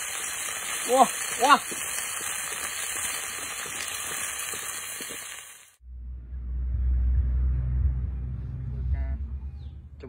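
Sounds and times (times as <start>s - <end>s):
food sizzling in oil: 0.0s - 5.8s
low rumble: 5.8s - 10.0s.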